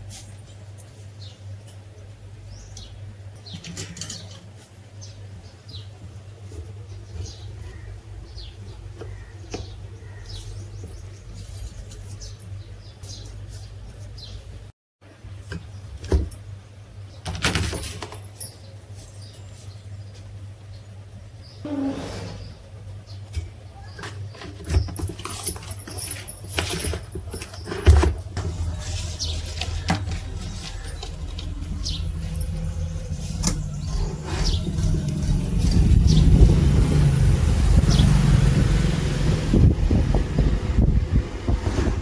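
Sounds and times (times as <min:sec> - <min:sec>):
high falling chirps: 0:28.4 - 0:38.3
electric motor hum: 0:28.4 - 0:41.0.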